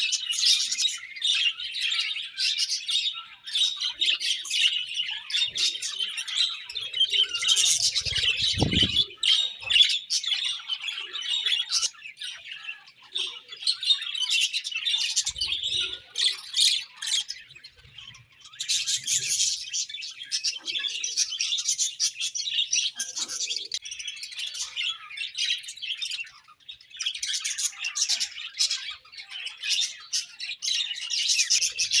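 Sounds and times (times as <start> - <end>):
budgies chirping and warbling: 0.0 - 32.0.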